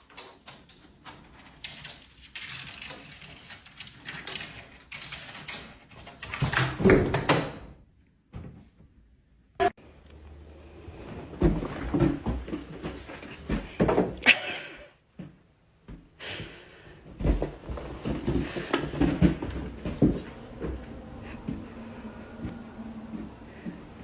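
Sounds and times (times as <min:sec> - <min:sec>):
knocks and thumps: 0:11.2 - 0:14.4, 0:17.1 - 0:21.8.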